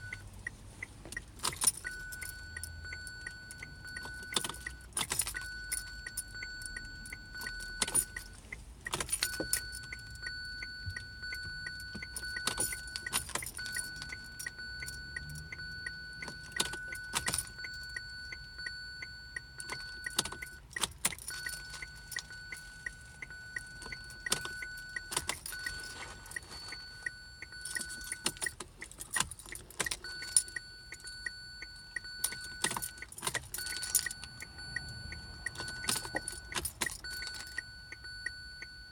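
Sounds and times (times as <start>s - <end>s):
keys jangling: 3.1s - 8.2s, 10.9s - 18.4s, 19.6s - 30.6s, 32.2s - 37.6s.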